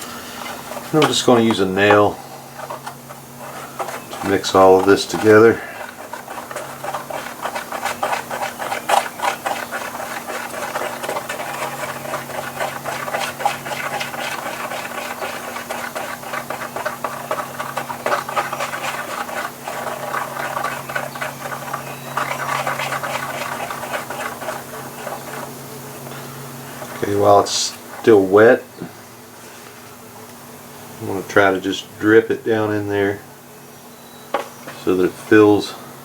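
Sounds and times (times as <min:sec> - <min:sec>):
nail scraping epoxy: 0:00.0 - 0:25.6.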